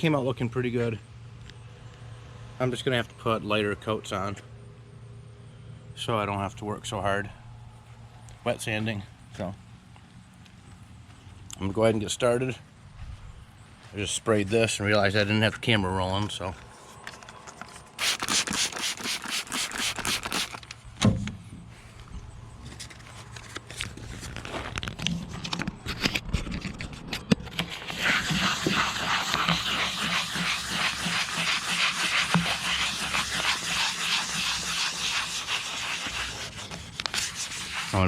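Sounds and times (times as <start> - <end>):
wet sandpaper rubbing strokes: 16.7 - 20.7, 27.5 - 38.0.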